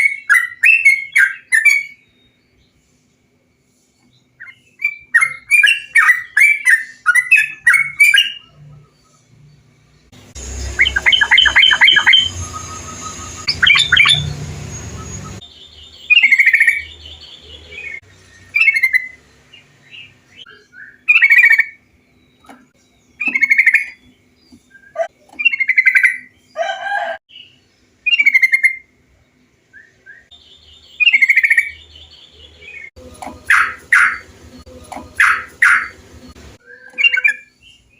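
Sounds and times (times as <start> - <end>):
bird chirps and bubbling song: 3.5 - 26.5, 27.3 - 37.9.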